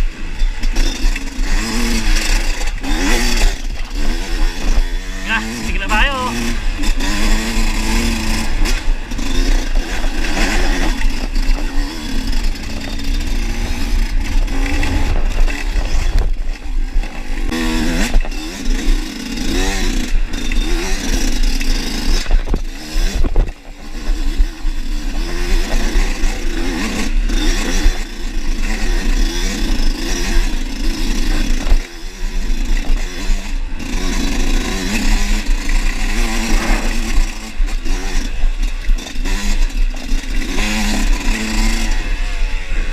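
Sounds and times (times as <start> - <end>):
bike rattling: 0.0 - 42.9
dirt bike engine revving: 0.0 - 42.9
wind rumble on microphone: 13.5 - 18.3, 22.2 - 25.1.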